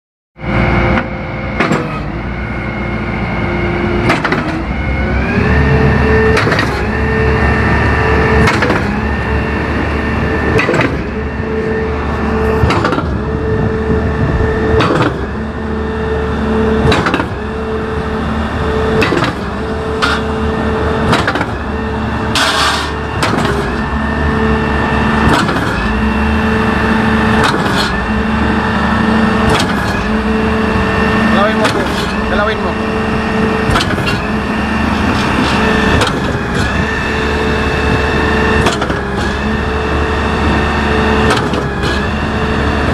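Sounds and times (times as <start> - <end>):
concrete pump engine drone: 0.4 - 42.9
pump cylinder clunks: 0.9 - 2.2, 4.0 - 4.6, 8.4 - 9.0, 10.5 - 11.1, 12.5 - 13.4, 14.7 - 15.4, 16.8 - 17.5, 19.0 - 20.4, 21.0 - 21.7, 22.3 - 23.9, 29.4 - 39.7, 40.5 - 42.9.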